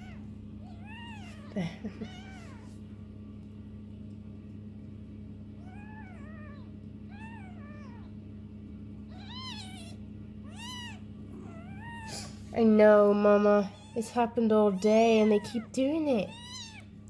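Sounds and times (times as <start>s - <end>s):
kittens mewing: 0.0s - 2.8s, 5.6s - 8.2s, 9.0s - 12.5s, 13.6s - 17.0s.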